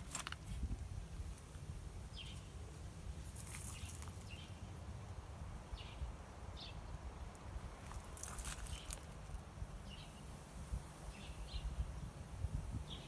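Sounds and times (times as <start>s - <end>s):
small bird chirping: 2.1s - 2.6s.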